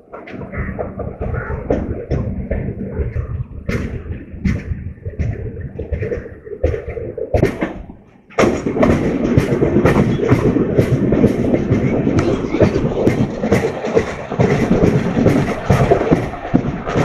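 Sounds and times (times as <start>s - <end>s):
running rumble: 0.0s - 17.0s
train wheels clattering: 0.0s - 17.0s.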